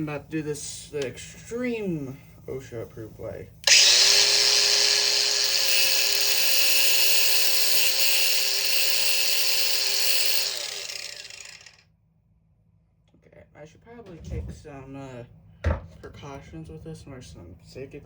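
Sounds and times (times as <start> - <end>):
power tool whining: 3.6 - 11.8.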